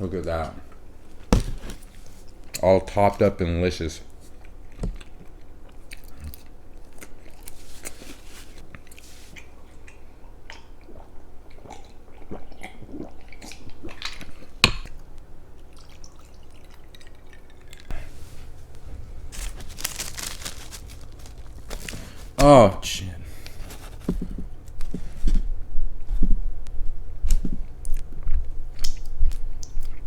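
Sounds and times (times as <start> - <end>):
pizza being bitten and chewed: 4.2 - 14.6, 27.2 - 30.0.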